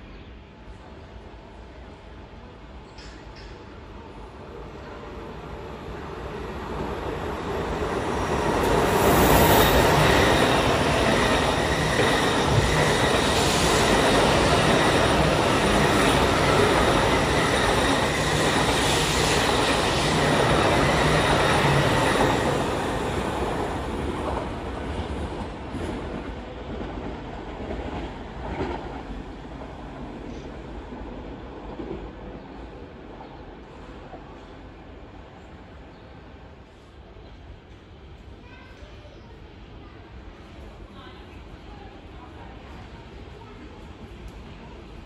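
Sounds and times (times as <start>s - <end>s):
train passing rush of wheels: 4.1s - 37.1s.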